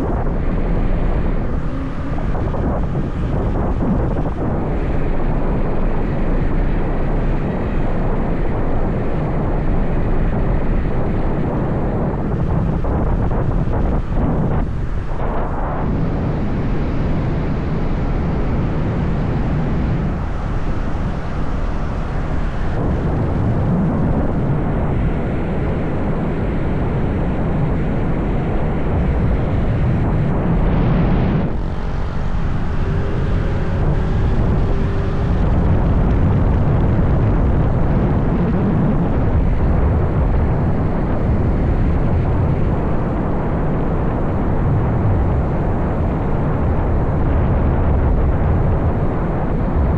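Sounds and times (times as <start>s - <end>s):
wind rushing over microphone: 0.0s - 49.9s.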